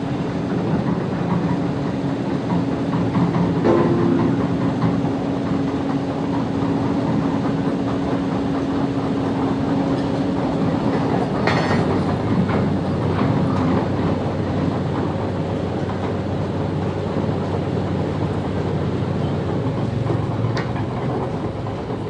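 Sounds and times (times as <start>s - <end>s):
excavator mechanical clatter: 0.0s - 22.0s
steady hum: 2.9s - 12.5s.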